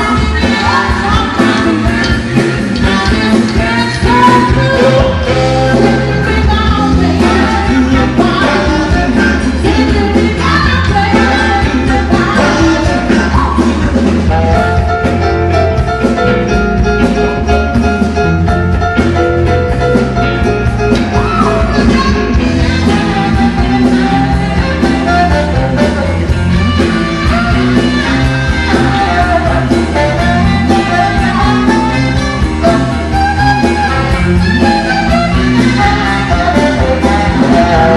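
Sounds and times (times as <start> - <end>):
person singing: 0.0 - 15.5, 27.2 - 37.9
band playing a song: 0.0 - 37.9
guitar: 0.0 - 37.9.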